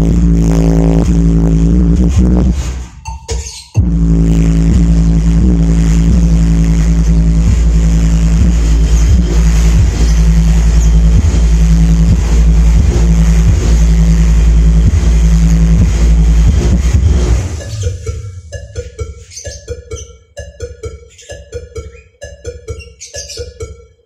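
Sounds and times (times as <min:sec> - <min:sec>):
low bass drone: 0:00.0 - 0:02.9, 0:03.8 - 0:19.4
faint regular beats: 0:00.0 - 0:24.0.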